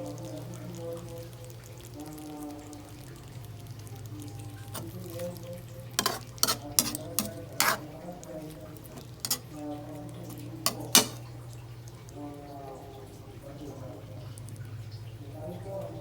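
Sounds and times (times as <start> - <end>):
faint sizzle: 0.0 - 16.0
utensil scraping a pan: 6.0 - 8.0, 8.8 - 9.6, 10.2 - 11.2.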